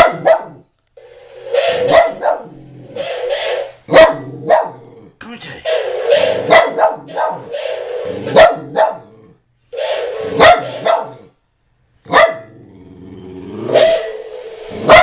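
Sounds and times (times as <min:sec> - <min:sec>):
dog barking: 0:00.0 - 0:00.6, 0:01.6 - 0:04.8, 0:05.6 - 0:09.1, 0:09.8 - 0:11.3, 0:12.1 - 0:12.5.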